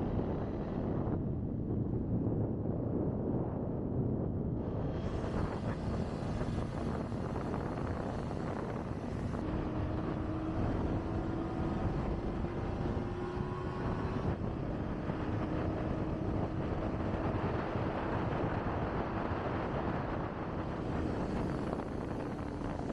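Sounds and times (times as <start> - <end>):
wind rushing over microphone: 0.0 - 22.9
motorcycle engine: 5.1 - 22.9.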